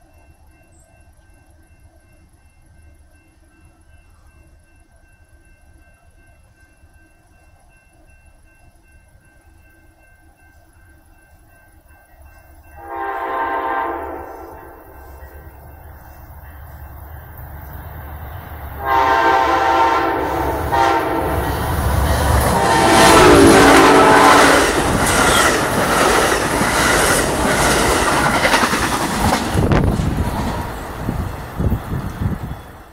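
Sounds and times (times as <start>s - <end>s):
train wheels clickety-clack: 0.0s - 32.9s
train horn: 12.8s - 15.6s, 18.8s - 25.4s
locomotive rumble: 12.8s - 32.9s.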